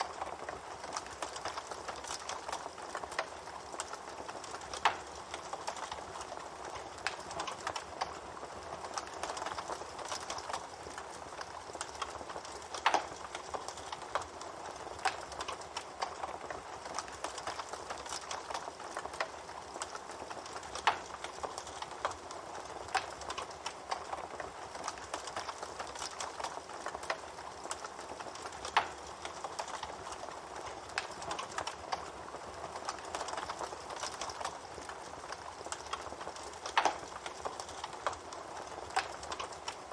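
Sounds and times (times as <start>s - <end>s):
wood fire crackling: 0.0s - 39.9s
loud fire pops: 8.9s - 32.1s.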